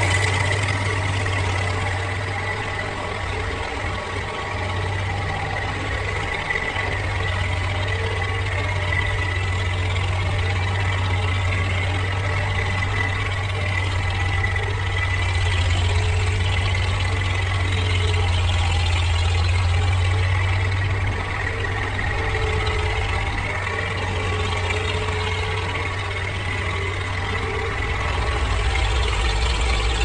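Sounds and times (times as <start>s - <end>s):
tractor engine droning: 0.0s - 30.0s.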